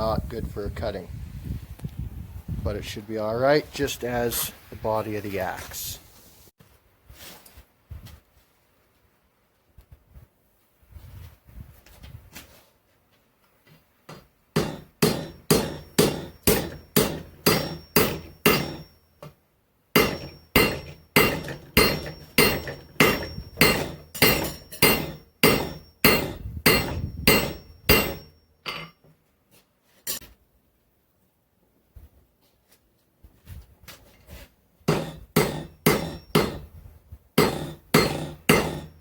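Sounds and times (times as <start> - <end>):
hammer striking steel on anvil: 14.6 - 19.3, 20.0 - 29.0, 34.9 - 36.7, 37.4 - 39.0
faint anvil ring: 14.6 - 19.4, 20.0 - 29.2, 35.0 - 36.7, 38.0 - 39.0.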